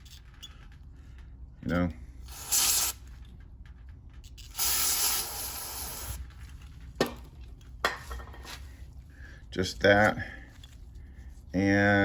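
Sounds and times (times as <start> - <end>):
spray can hissing: 2.3 - 3.0, 4.5 - 6.2.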